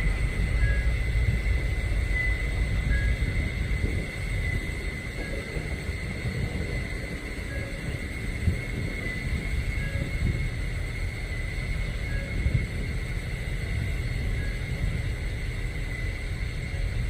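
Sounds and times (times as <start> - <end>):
diesel locomotive rumble: 0.0 - 17.0
steady high whine: 0.0 - 17.0.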